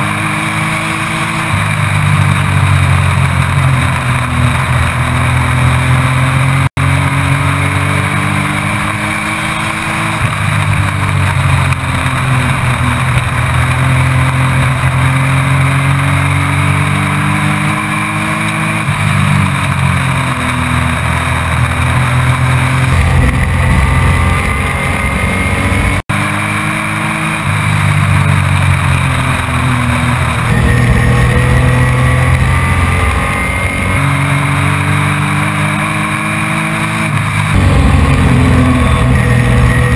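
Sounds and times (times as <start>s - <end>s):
race truck engine revving: 0.0s - 39.9s.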